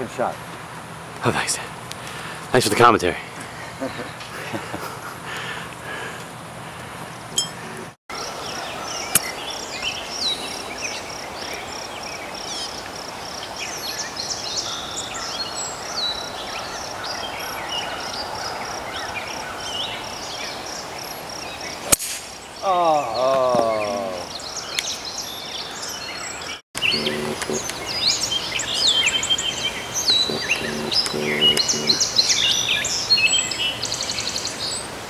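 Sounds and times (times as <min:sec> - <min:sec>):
steady background hiss: 0:00.0 - 0:17.4, 0:26.8 - 0:35.0
birds chirping: 0:01.2 - 0:34.9
insect high call: 0:26.8 - 0:33.2.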